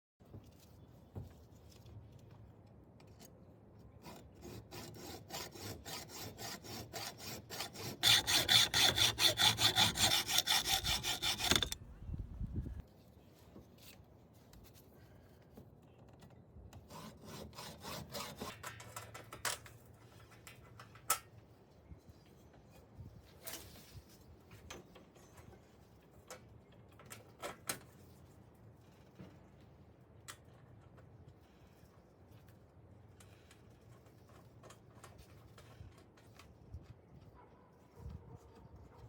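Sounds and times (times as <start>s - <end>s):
hand saw strokes: 4.0s - 12.5s, 16.8s - 18.6s.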